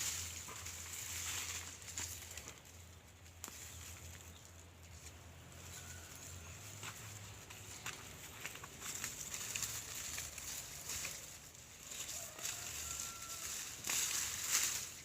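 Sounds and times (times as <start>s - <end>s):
small clicks and rustles: 7.4s - 15.0s.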